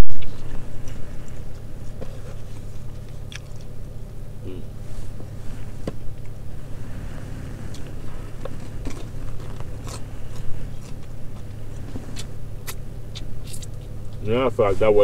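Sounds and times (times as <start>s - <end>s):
low hum: 0.0s - 15.0s
person chewing food: 0.2s - 4.8s, 7.6s - 14.2s.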